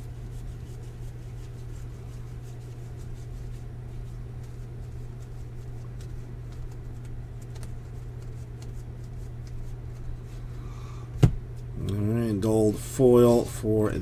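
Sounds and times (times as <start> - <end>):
steady low hum: 0.0 - 14.0
cards ticking and rubbing: 0.4 - 10.0.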